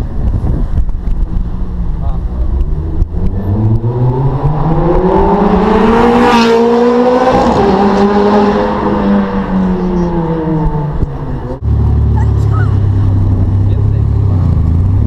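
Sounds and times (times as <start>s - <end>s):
engine rumbling at low pitch: 0.0s - 5.4s, 9.0s - 15.0s
car engine accelerating past: 2.7s - 12.3s.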